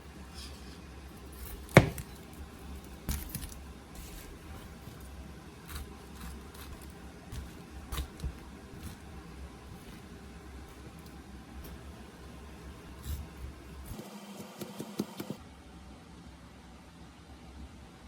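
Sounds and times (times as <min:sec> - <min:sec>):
objects knocking: 0:00.4 - 0:14.0.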